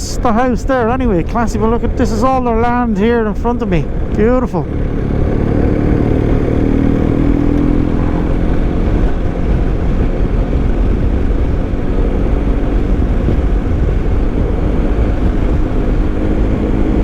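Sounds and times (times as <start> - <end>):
motorcycle engine rumble: 0.0 - 17.0
road noise: 0.0 - 17.0.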